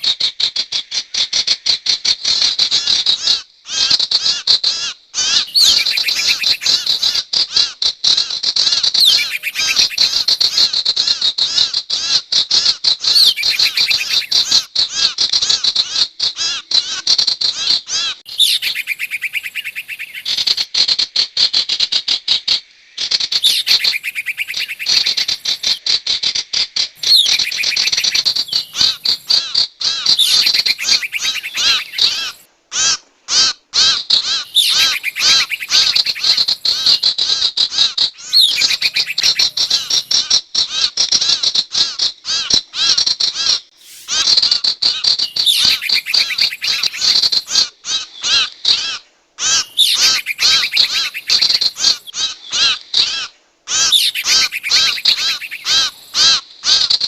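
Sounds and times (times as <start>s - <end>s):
bird chattering call: 5.2s - 10.8s, 13.1s - 20.7s, 23.2s - 26.4s, 27.0s - 32.5s, 33.8s - 41.4s, 42.8s - 56.4s.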